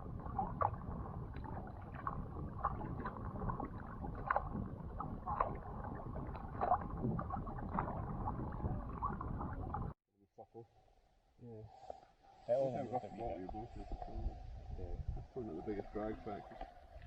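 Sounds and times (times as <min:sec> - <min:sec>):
paddle splashes and drips: 0:00.0 - 0:10.0, 0:15.3 - 0:17.0.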